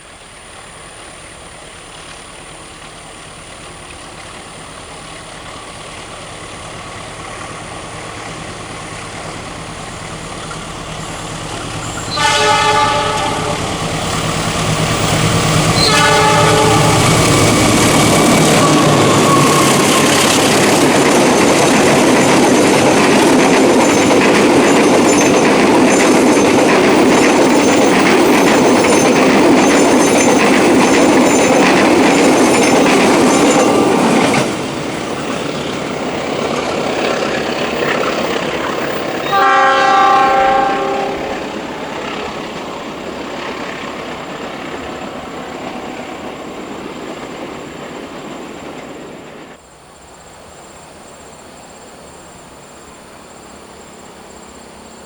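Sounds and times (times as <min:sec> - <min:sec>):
train passing close by: 0:00.0 - 0:55.0
wheels clacking over rail joints: 0:01.6 - 0:49.4
train horn blast: 0:11.8 - 0:13.8, 0:15.7 - 0:17.5, 0:39.2 - 0:41.5.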